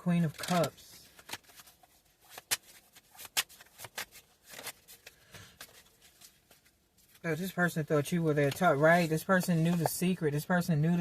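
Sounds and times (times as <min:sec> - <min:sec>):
cards flicking and tapping: 0:02.3 - 0:05.8.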